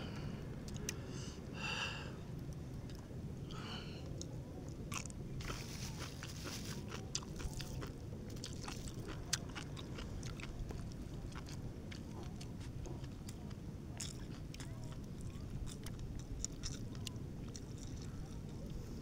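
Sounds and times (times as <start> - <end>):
person chewing food: 0.7 - 1.0, 4.9 - 18.8.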